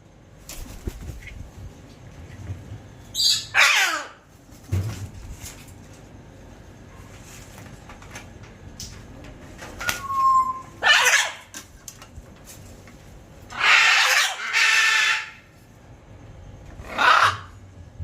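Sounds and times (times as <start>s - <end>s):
macaws squawking: 3.2s - 4.2s, 10.8s - 11.5s, 13.5s - 15.5s, 16.8s - 17.6s
clear whistle: 9.8s - 10.8s.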